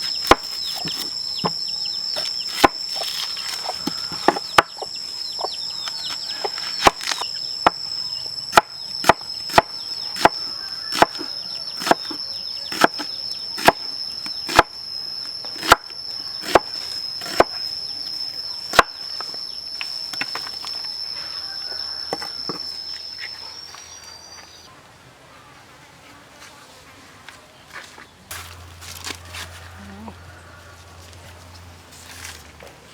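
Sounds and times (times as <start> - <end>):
insect high-pitched drone: 0.0 - 24.7
knife chopping on wooden board: 8.6 - 13.8, 14.5 - 14.7, 15.6 - 15.8, 16.4 - 17.5, 18.7 - 18.9.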